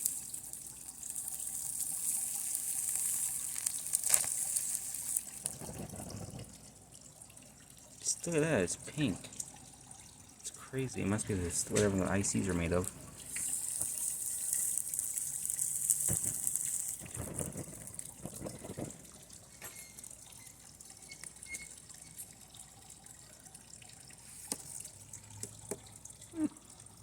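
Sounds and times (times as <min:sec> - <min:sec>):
circuit board burning hiss: 0:00.0 - 0:05.5, 0:13.3 - 0:18.6
small crackles: 0:00.0 - 0:06.8, 0:12.7 - 0:22.5.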